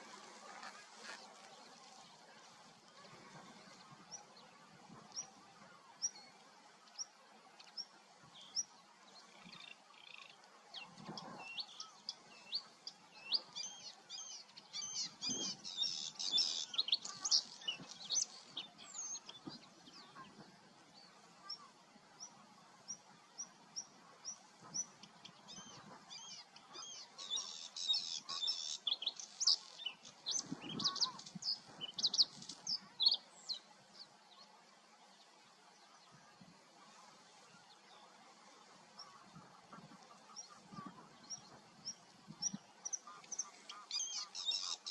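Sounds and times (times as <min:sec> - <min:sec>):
songbirds warbling: 0:09.4 - 0:20.5, 0:22.9 - 0:34.1, 0:38.8 - 0:44.9.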